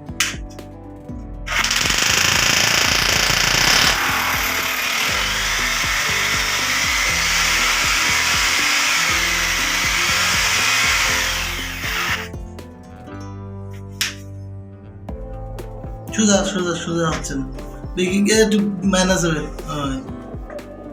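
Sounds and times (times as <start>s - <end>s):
background music: 0.0s - 20.9s
power drill running: 1.5s - 12.3s.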